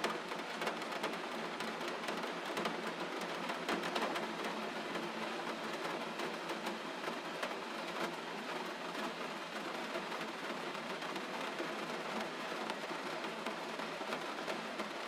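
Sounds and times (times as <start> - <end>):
gentle rain falling: 0.0 - 15.0.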